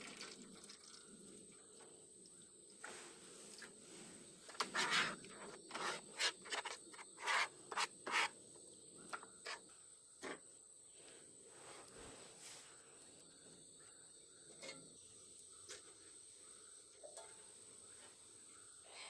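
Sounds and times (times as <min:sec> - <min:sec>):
hand scraping strokes: 0:02.8 - 0:08.4.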